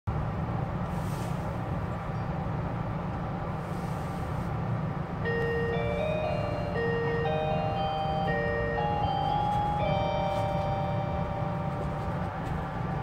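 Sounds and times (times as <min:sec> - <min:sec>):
train running rumble: 0:00.1 - 0:13.0
onboard chime melody: 0:05.2 - 0:12.2.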